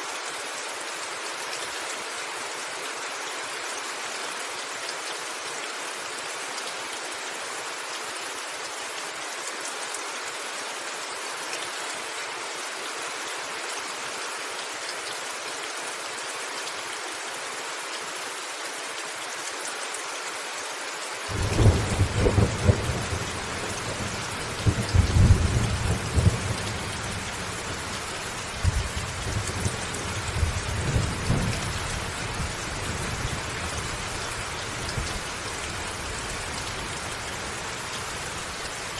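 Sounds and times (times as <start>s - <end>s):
heavy rain on a roof: 0.0s - 38.9s
thunder rumbling: 21.3s - 28.0s.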